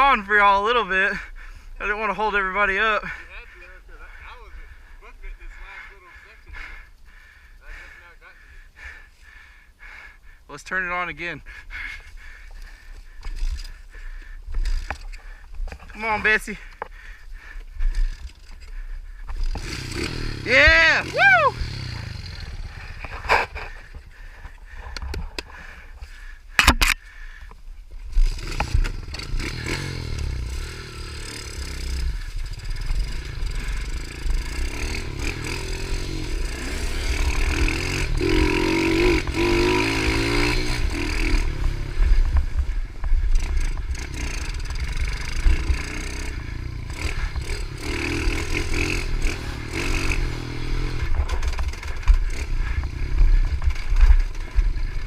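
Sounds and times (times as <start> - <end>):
low wind rumble: 11.2 - 55.0
small motorbike engine clattering: 12.5 - 20.8, 21.7 - 25.8, 26.5 - 55.0.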